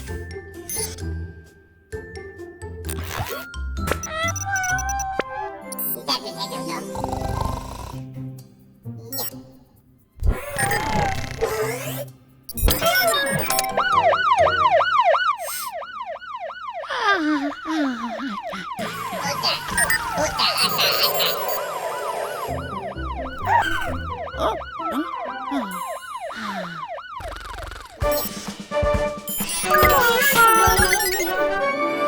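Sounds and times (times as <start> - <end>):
light music: 0.0 - 10.2, 19.2 - 26.2, 28.0 - 32.0
cartoon siren whooping: 4.0 - 6.1, 12.7 - 28.2, 29.3 - 31.6
falling sound effect: 18.1 - 28.3.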